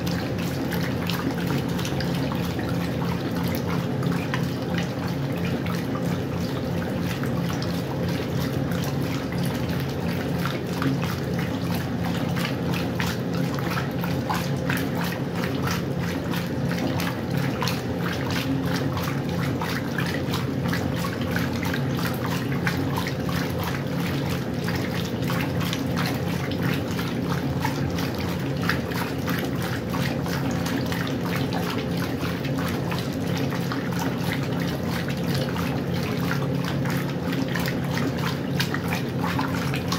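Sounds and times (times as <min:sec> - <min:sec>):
washing machine motor hum: 0:00.0 - 0:39.9
water sloshing in washing machine: 0:00.0 - 0:39.9.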